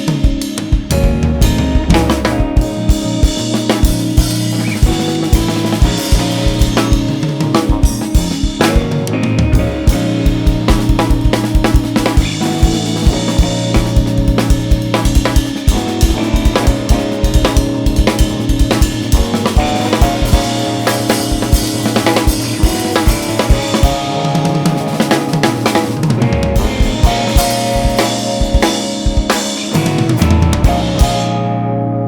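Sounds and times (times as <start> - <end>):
busy drum kit: 0.0 - 31.9
bass line: 0.0 - 32.0
jazz fusion band playing: 0.0 - 32.0.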